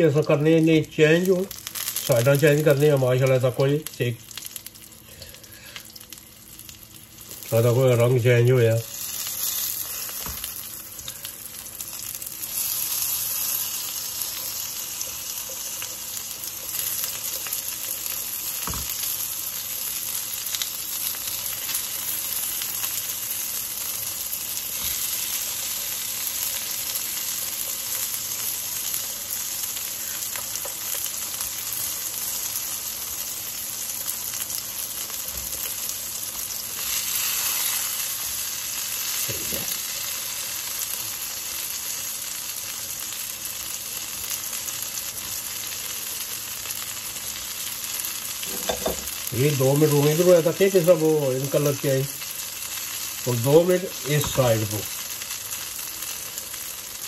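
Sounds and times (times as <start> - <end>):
eggplants sizzling in hot oil: 0.0 - 57.0
light knocks in frying pan: 18.6 - 19.0, 48.5 - 49.1.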